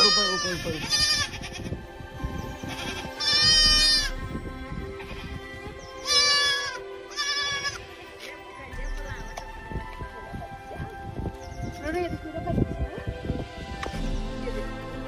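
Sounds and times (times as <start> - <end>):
drawn-out bleating calls: 0.0 - 9.3.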